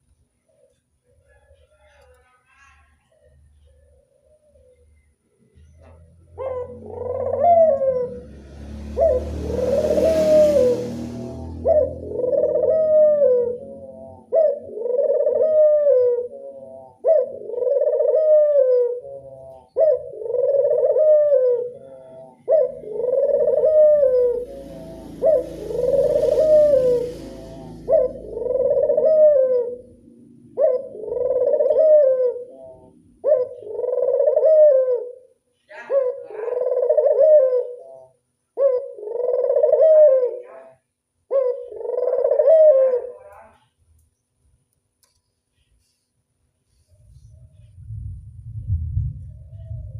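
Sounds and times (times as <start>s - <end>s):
dove cooing: 6.3s - 43.6s.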